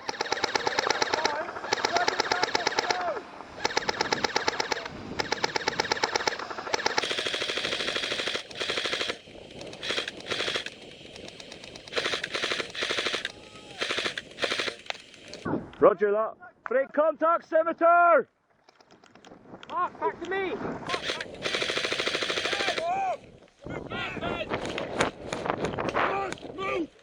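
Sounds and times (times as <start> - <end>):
airsoft guns firing full-auto bursts: 0.0 - 15.5, 20.9 - 23.1.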